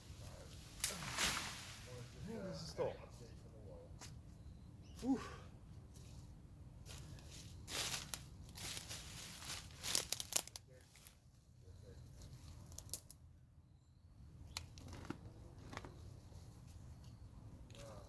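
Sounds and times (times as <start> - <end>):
foliage rustling and crackling: 0.0 - 3.4, 6.9 - 11.2
branches snapping: 0.8 - 1.8, 7.8 - 10.6.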